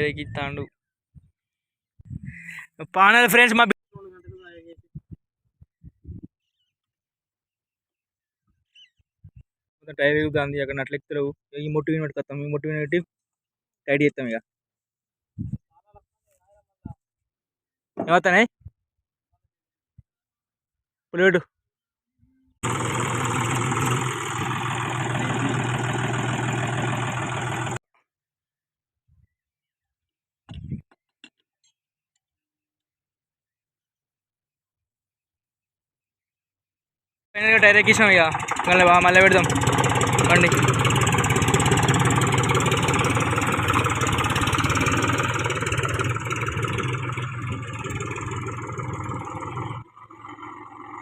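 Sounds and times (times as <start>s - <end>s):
tractor engine idling: 22.6s - 27.8s, 37.4s - 51.0s.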